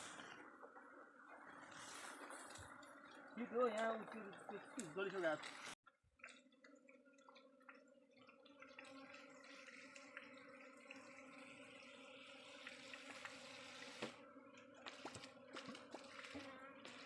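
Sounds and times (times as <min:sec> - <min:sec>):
bee swarm humming: 0:07.0 - 0:17.0.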